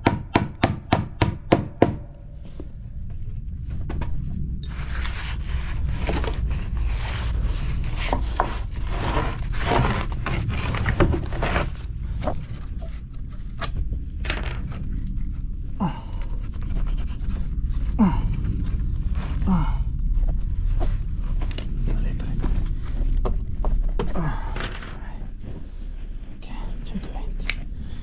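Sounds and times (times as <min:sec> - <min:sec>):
steady low rumble: 0:00.0 - 0:28.0
wood scraping and knocking: 0:03.7 - 0:18.2.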